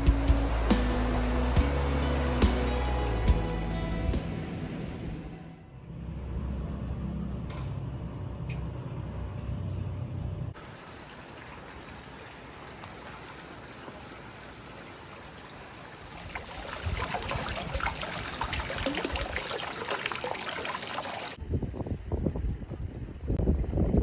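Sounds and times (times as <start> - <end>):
stream water rushing: 10.6 - 21.4.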